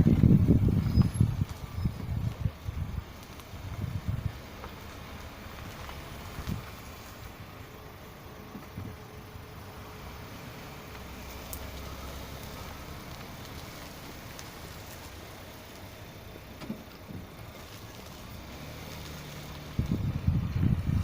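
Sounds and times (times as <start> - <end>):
low buffeting on microphone: 0.0 - 7.7, 16.8 - 21.0
car rolling with low rumble: 0.0 - 21.0.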